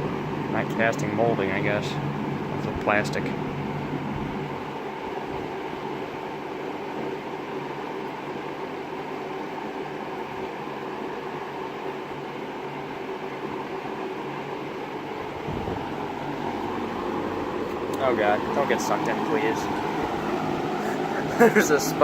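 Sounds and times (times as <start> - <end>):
low motor hum: 0.0 - 6.3, 14.8 - 22.0
fan air rushing: 0.0 - 22.0.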